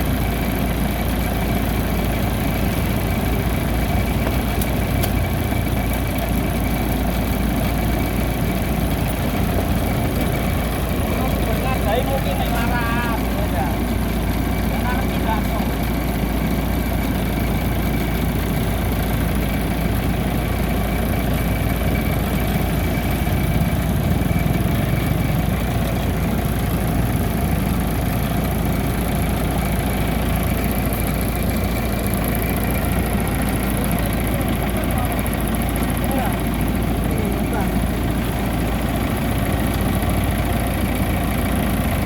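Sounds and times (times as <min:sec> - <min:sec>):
combine harvester engine running: 0:00.0 - 0:42.0.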